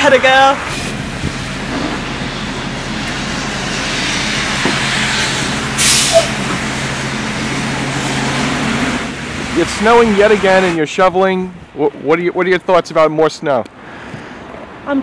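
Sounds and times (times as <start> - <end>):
bus diesel engine running: 0.0 - 12.1
air brakes hissing: 5.1 - 6.6.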